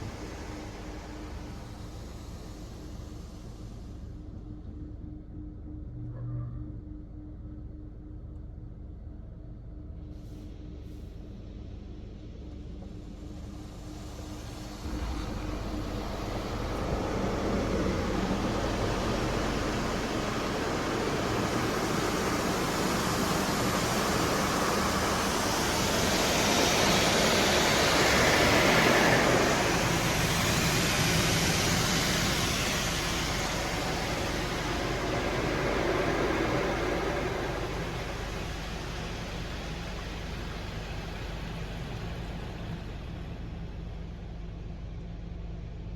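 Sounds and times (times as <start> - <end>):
car wash spray rushing: 0.0 - 3.7, 13.7 - 43.2
low machine hum: 0.0 - 45.9.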